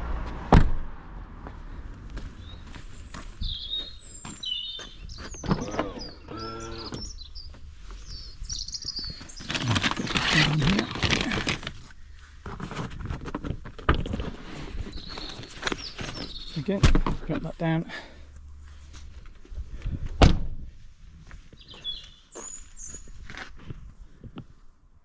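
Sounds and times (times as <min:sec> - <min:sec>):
birds chirping: 0:02.3 - 0:12.1, 0:14.0 - 0:18.3, 0:21.4 - 0:23.2
seat backs rustling folding: 0:09.3 - 0:17.4.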